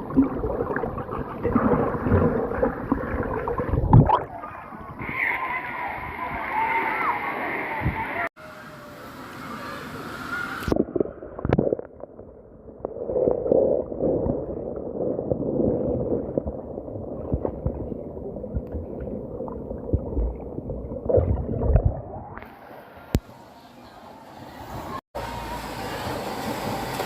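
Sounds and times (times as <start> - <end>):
water gurgling and sloshing: 0.0 - 8.2, 10.6 - 23.3.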